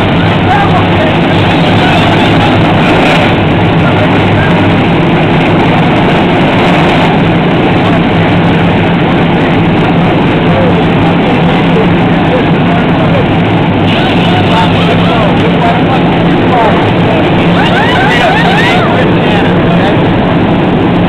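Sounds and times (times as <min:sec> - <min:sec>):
race car engines idling loudly: 0:00.0 - 0:21.0.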